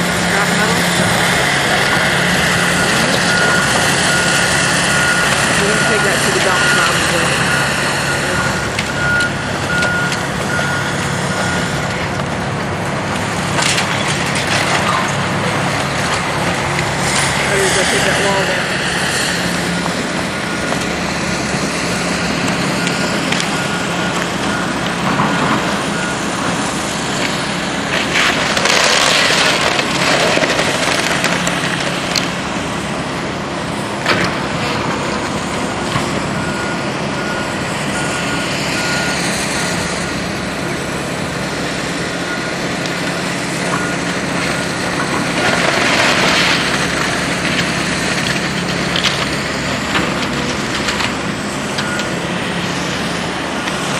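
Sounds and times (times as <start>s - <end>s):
diesel demolition machinery running: 0.0s - 53.9s
backup alarm beeping: 1.8s - 11.8s
crashes of falling debris: 27.3s - 32.4s, 44.2s - 51.4s.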